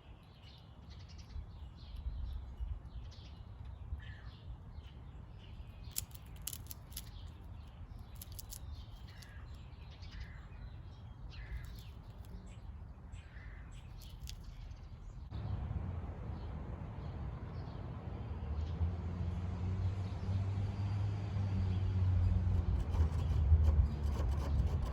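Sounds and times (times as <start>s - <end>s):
passing traffic rumble: 15.1s - 24.9s.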